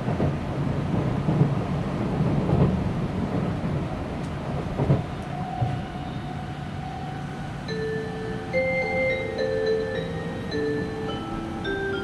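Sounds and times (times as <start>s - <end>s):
train cabin rumble: 0.0s - 12.0s
melodic onboard chime: 7.7s - 12.0s.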